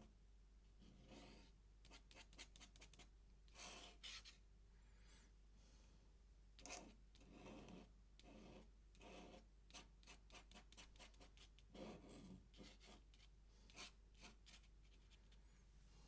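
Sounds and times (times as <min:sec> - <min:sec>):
ink pen scratching on paper: 0:00.8 - 0:04.4, 0:06.6 - 0:15.4.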